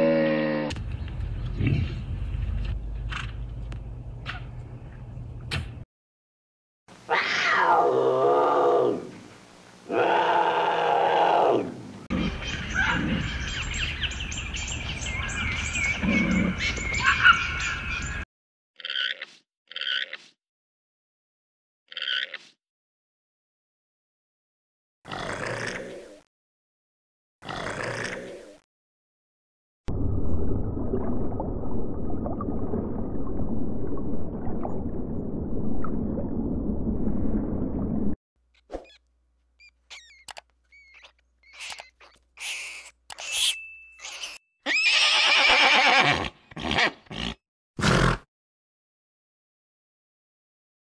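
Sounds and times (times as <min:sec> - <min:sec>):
small birds chirping and trilling: 0:12.1 - 0:18.2, 0:39.6 - 0:44.4
underwater rumble and gurgle: 0:29.9 - 0:38.2.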